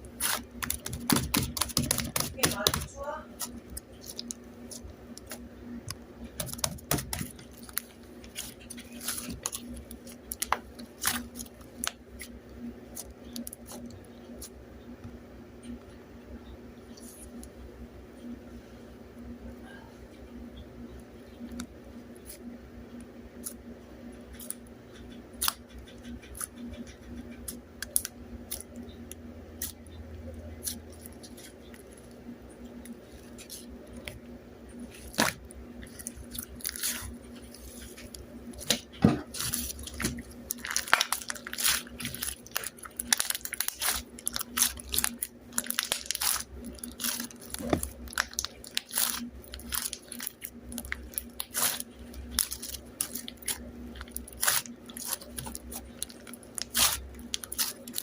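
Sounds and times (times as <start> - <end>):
steady low hum: 0.0 - 58.0
crunchy food being chewed: 30.6 - 34.2, 34.8 - 58.0.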